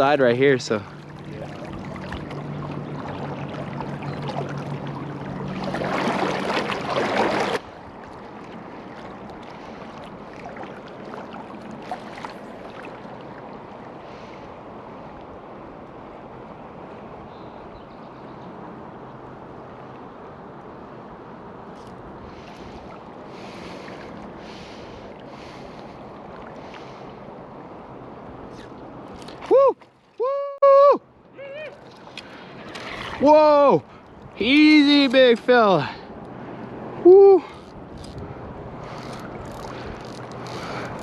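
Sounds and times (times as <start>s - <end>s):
low steady hum: 0.0s - 18.1s
river water flowing: 0.0s - 41.0s.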